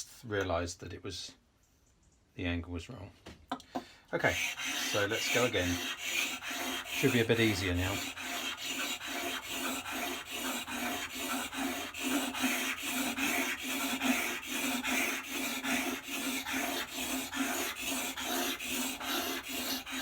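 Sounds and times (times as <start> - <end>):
blade scraping on sandpaper: 4.2 - 20.0.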